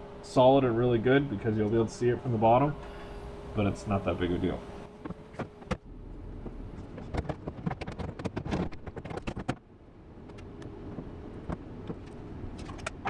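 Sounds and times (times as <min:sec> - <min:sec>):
knocks and clatter: 0:06.8 - 0:09.6.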